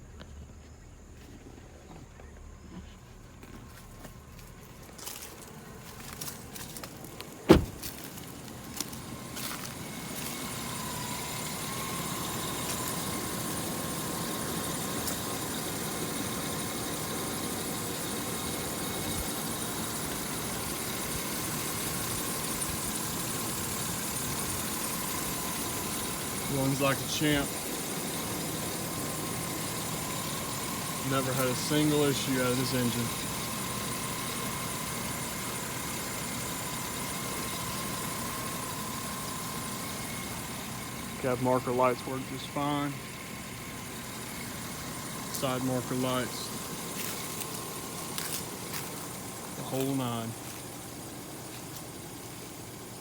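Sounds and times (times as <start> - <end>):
engine idling: 0.6 - 53.0
loud thump: 7.5 - 8.0.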